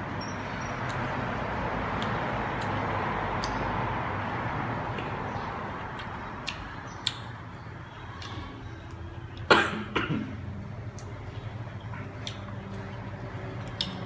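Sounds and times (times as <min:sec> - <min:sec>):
chewing crisp fruit: 0:01.9 - 0:03.6, 0:05.8 - 0:07.4, 0:10.8 - 0:14.0
sharp clicks of fruit handling: 0:03.4 - 0:03.6, 0:05.9 - 0:07.3.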